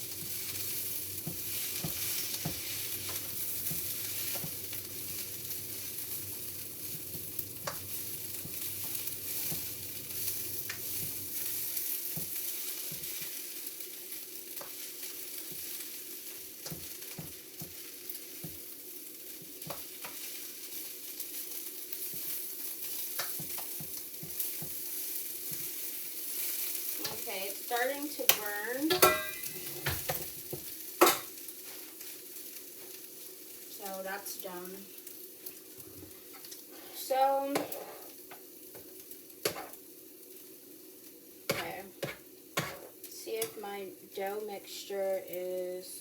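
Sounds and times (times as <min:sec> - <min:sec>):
food sizzling in a pan: 0:00.0 - 0:46.0
utensil scraping a pan: 0:28.3 - 0:30.1, 0:36.3 - 0:38.2, 0:41.5 - 0:43.6.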